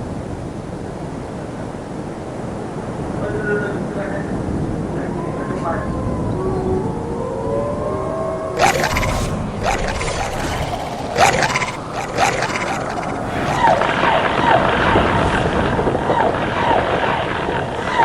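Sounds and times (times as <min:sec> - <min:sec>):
water falling: 0:08.6 - 0:15.8.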